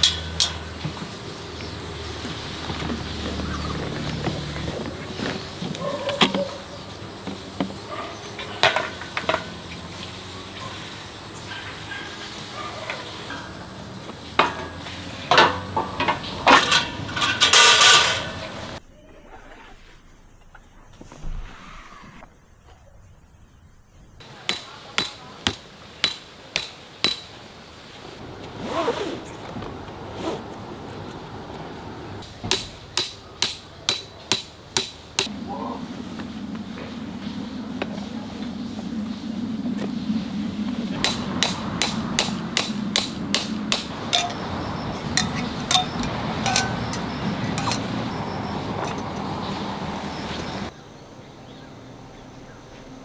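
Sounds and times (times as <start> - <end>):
sharp metallic strikes: 41.0 - 47.9.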